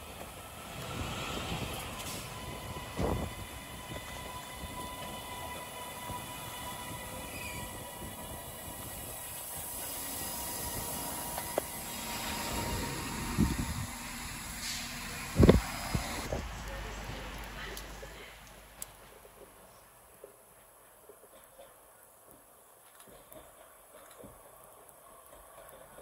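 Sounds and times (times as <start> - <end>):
train rumble: 0.0 - 20.8.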